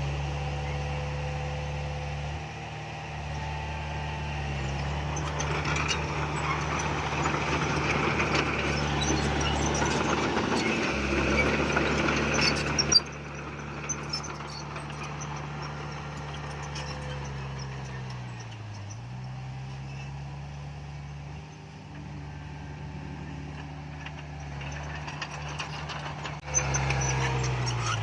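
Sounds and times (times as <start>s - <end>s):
diesel machinery engine running: 0.0s - 28.0s
machine grinding soil: 3.2s - 18.4s, 22.0s - 28.0s.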